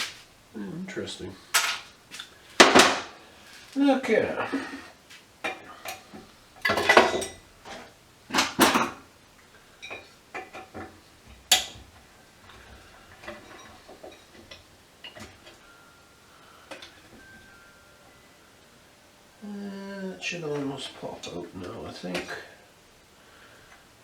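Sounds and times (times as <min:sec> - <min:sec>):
metal tools clattering on workbench: 0:01.5 - 0:03.8, 0:05.5 - 0:09.0, 0:12.5 - 0:15.6.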